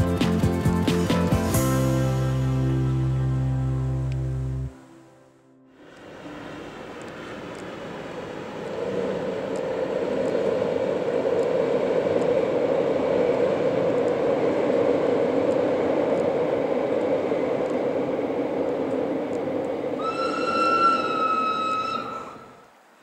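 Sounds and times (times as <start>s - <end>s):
train rumbling over viaduct: 0.0s - 4.8s, 5.7s - 22.8s
train horn blast: 20.0s - 22.6s.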